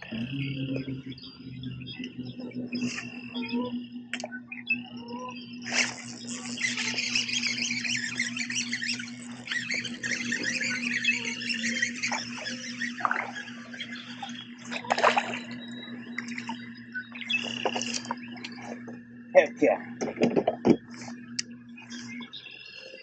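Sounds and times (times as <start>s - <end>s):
trolling motor hum: 0.0s - 23.0s
fish splashing in water: 11.6s - 16.6s.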